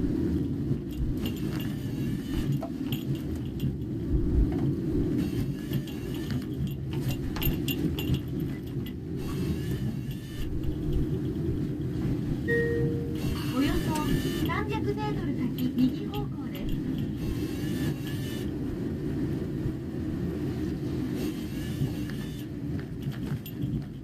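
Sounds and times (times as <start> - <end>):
light rattles and clicks: 0.0 - 12.5, 13.4 - 18.2, 21.2 - 24.0
low road rumble: 0.0 - 24.0.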